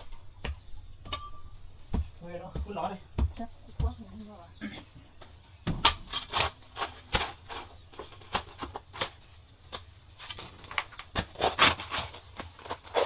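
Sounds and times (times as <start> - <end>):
rustling: 1.2 - 13.0.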